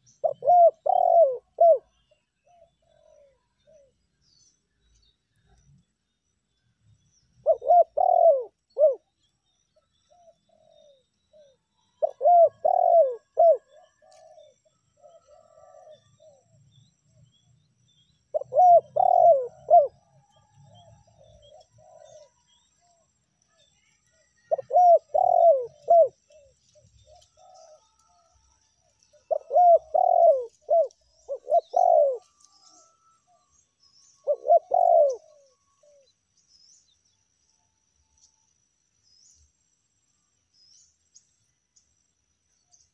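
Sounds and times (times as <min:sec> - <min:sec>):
dove cooing: 0:00.0 - 0:04.0, 0:07.4 - 0:09.0, 0:10.1 - 0:16.6, 0:18.3 - 0:22.6, 0:24.5 - 0:28.3, 0:29.1 - 0:33.4, 0:34.2 - 0:36.1.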